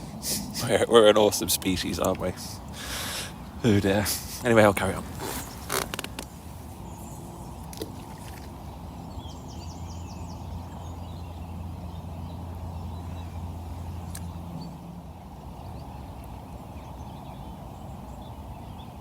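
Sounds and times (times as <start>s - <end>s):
bird chirps: 6.8s - 19.0s.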